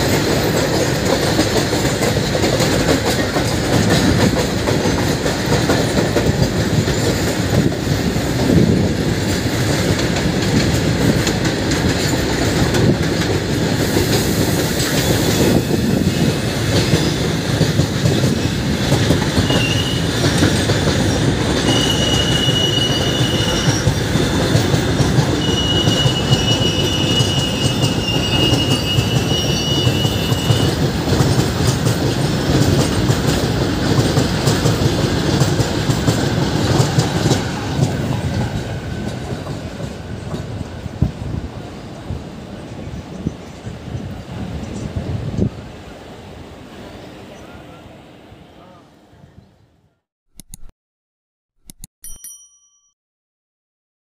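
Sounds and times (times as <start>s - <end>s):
train rumble and rail clatter: 0.0s - 49.7s
thin high wheel squeal: 19.4s - 20.2s, 21.6s - 24.6s, 25.4s - 30.8s.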